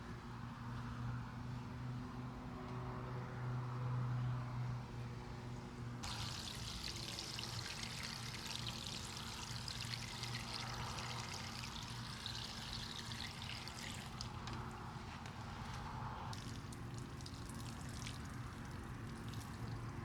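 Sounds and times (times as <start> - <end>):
water pouring in a stream: 6.0 - 20.0.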